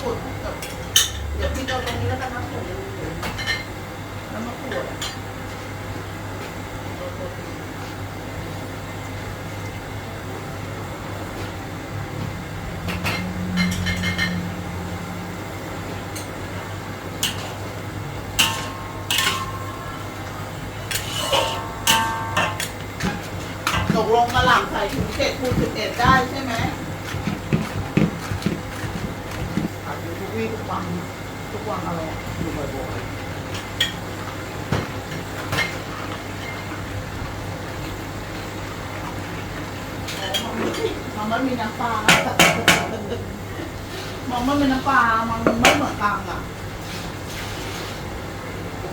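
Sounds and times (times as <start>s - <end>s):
steady low hum: 0.0s - 48.9s
stir-frying in a wok: 12.8s - 29.8s
metal spatula scraping a wok: 20.9s - 22.6s.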